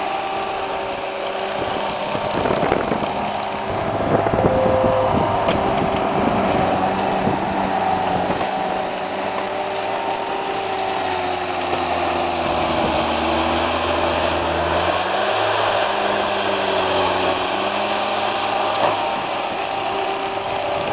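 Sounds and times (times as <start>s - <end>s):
diesel loader engine under load: 0.0s - 20.9s.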